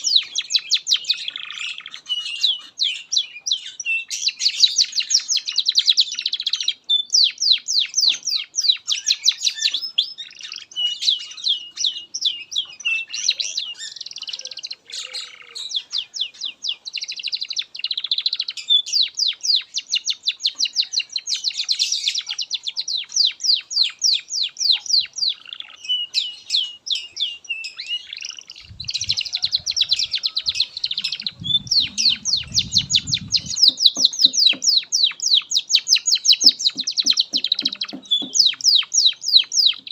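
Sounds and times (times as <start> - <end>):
canary singing trills: 0.0 - 39.9
low rumble: 30.9 - 33.7.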